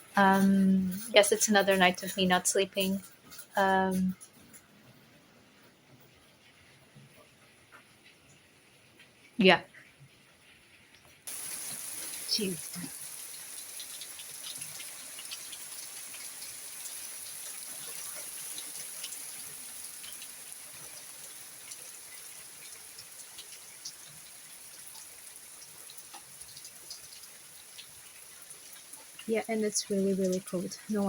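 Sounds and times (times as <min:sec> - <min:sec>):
steady rain hiss: 0:00.0 - 0:31.0
hail ticking: 0:00.1 - 0:04.2, 0:11.3 - 0:31.0.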